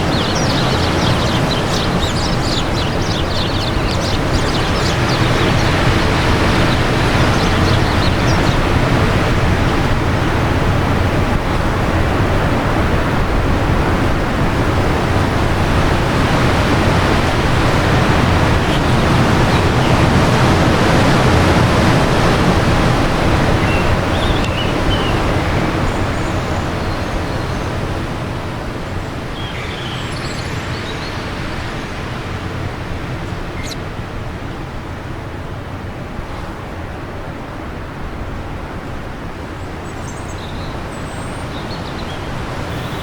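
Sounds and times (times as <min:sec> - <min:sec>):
faint bird chirps: 0:00.0 - 0:08.7, 0:29.3 - 0:32.5, 0:33.4 - 0:33.8, 0:39.8 - 0:43.0
wind gusting: 0:00.0 - 0:43.0.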